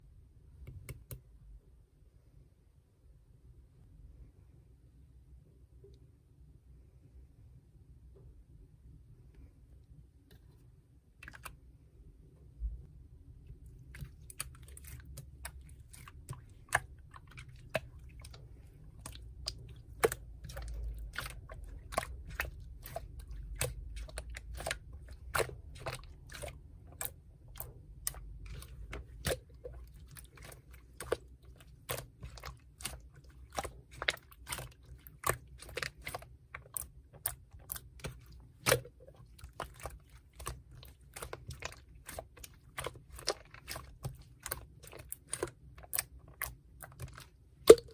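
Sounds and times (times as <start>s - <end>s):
slime clicking and popping: 39.5s - 47.9s.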